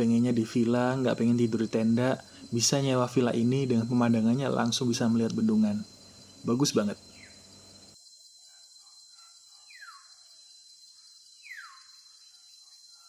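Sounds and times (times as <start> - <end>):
insects droning: 0.0 - 13.0
whistled bird calls: 9.7 - 10.1, 11.4 - 11.9.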